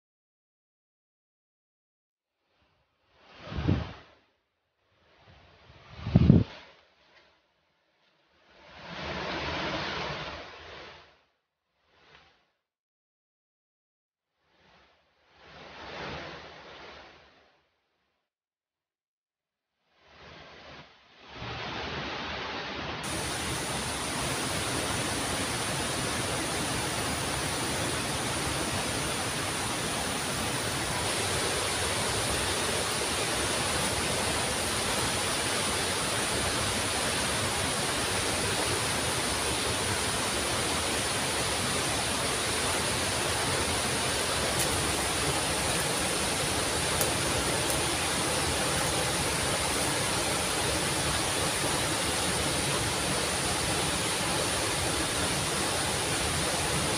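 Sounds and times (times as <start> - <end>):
waterfall rushing: 23.0 - 56.9.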